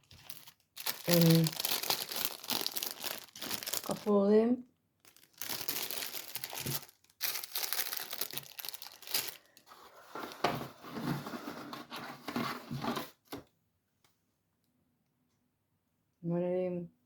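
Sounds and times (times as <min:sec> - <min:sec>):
packaging crinkling and rustling: 0:00.0 - 0:04.2, 0:05.0 - 0:13.4.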